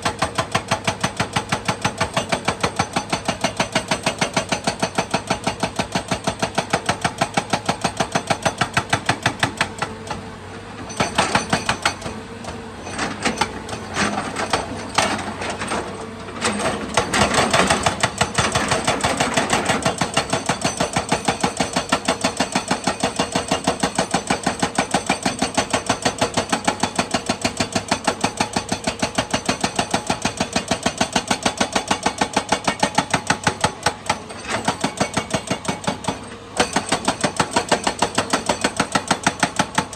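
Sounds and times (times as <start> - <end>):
metal clanking and scraping: 12.8 - 17.8.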